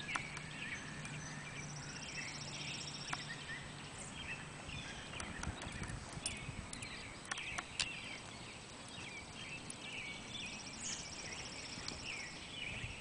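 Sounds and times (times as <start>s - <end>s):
small birds chirping and calling: 0.0s - 13.0s
sharp clicks: 5.1s - 8.0s.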